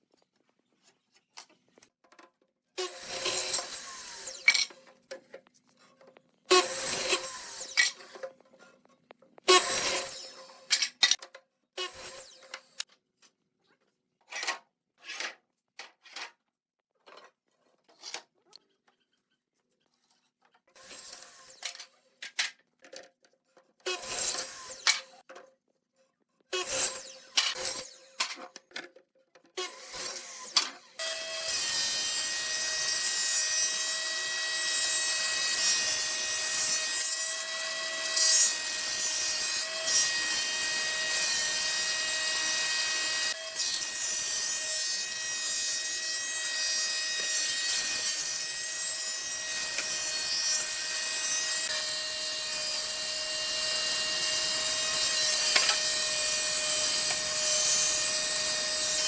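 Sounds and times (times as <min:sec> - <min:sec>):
power tool cutting wood: 0:02.8 - 0:04.9, 0:06.5 - 0:08.3, 0:09.4 - 0:11.0, 0:11.8 - 0:12.9, 0:23.8 - 0:25.2, 0:26.5 - 0:28.2, 0:29.6 - 0:59.0.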